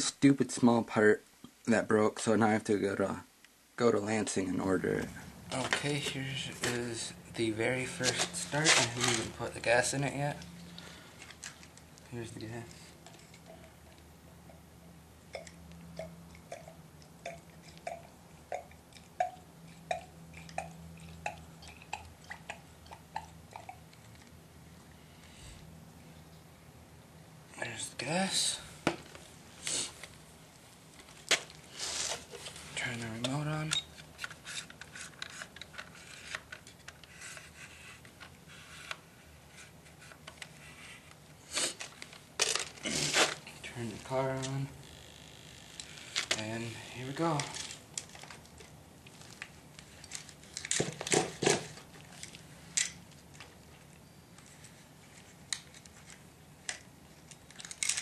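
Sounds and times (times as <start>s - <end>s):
faint low hum: 0.0s - 58.0s
scratchy handling noises: 4.8s - 14.6s, 28.9s - 44.7s
rustling: 7.8s - 14.6s, 28.7s - 58.0s.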